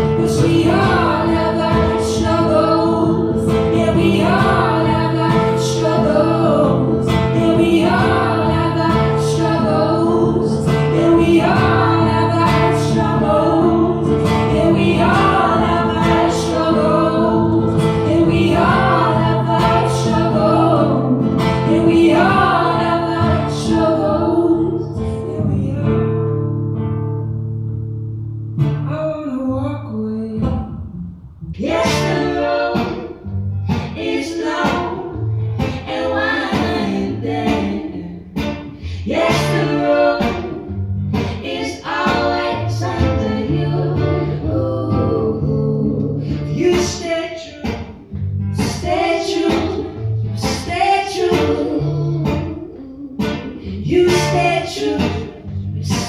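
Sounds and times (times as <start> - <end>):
guitar: 0.0 - 56.0
person singing: 34.0 - 47.8, 48.6 - 56.0.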